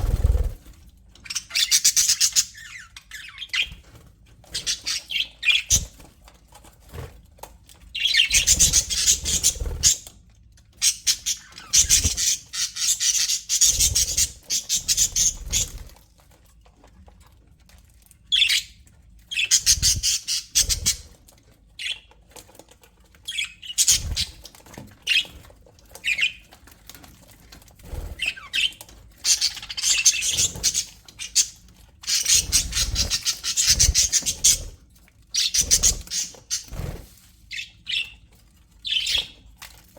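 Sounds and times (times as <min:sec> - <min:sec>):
budgerigars chattering and squawking: 0:01.2 - 0:03.8, 0:04.5 - 0:06.0, 0:08.0 - 0:10.0, 0:10.8 - 0:15.9, 0:19.3 - 0:21.2, 0:23.3 - 0:24.4, 0:28.1 - 0:36.9, 0:38.8 - 0:39.4.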